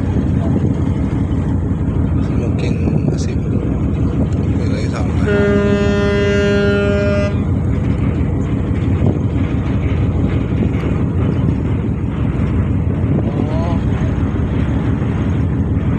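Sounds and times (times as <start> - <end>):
ferry engine rumble: 0.0 - 15.9.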